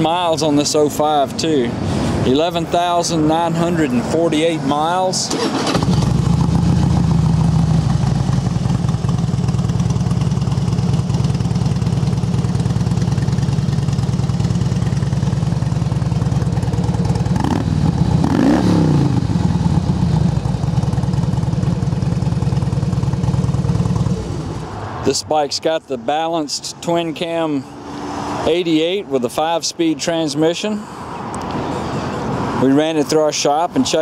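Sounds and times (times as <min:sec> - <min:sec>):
motorcycle engine running: 0:05.5 - 0:24.7.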